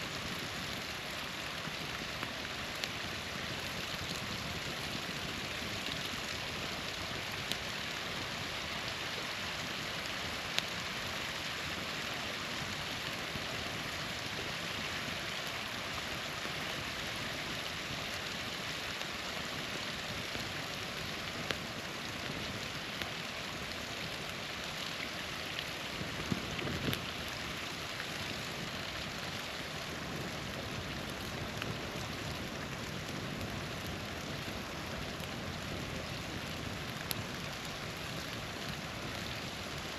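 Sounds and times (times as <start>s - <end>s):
small waterfall splashing: 0.0s - 39.9s
campfire pops: 1.8s - 7.7s, 20.2s - 23.2s, 25.6s - 27.4s, 30.0s - 39.9s.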